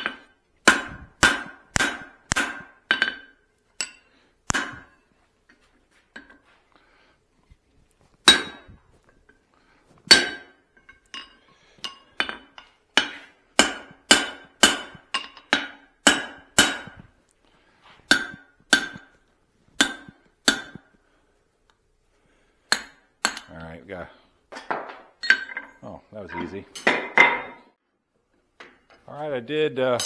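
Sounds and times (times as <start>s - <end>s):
hammer striking steel on anvil: 0.0s - 5.1s, 8.2s - 8.8s, 10.1s - 17.1s, 18.1s - 21.0s, 22.7s - 23.6s.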